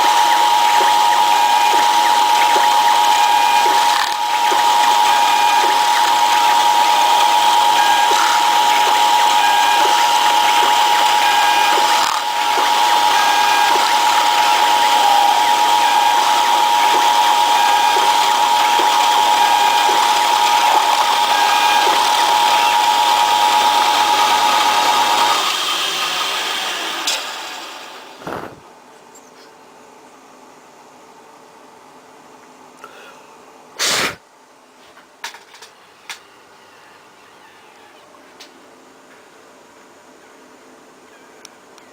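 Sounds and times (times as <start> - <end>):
cnc mill high whine: 0.0 - 28.6.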